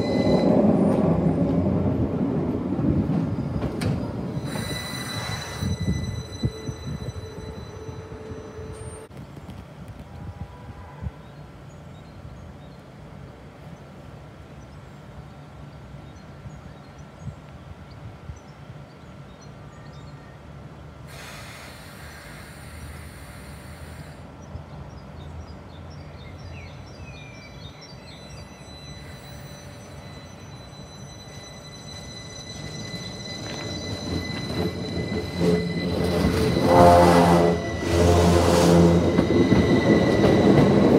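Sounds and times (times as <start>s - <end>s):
electric train rumbling: 0.0s - 40.9s
hiss: 21.1s - 24.3s.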